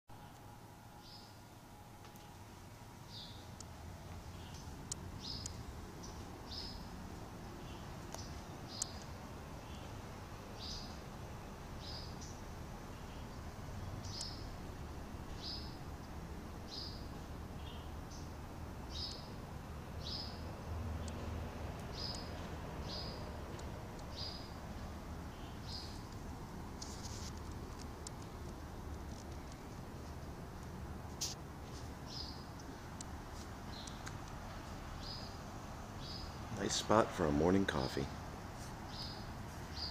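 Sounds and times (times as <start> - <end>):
small bird chirping: 1.0 - 1.4, 3.0 - 11.0, 11.8 - 14.6, 15.3 - 15.8, 16.6 - 19.4, 20.0 - 26.0, 32.0 - 32.8, 33.7 - 34.2, 35.0 - 36.7, 38.8 - 39.9.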